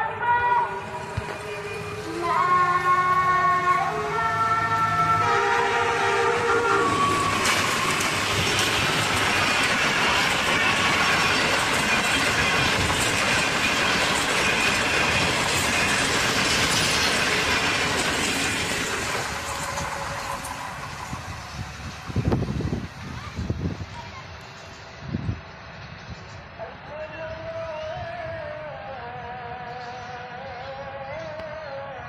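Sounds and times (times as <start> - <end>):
locomotive horn chord: 0.4 - 7.6
train wheels rattling on rails: 0.6 - 31.4.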